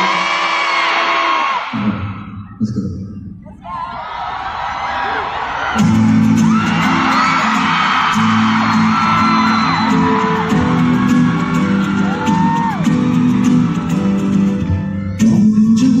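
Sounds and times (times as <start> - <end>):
audience screaming and cheering: 0.0 - 2.4, 3.5 - 15.0
live band playing: 5.8 - 16.0.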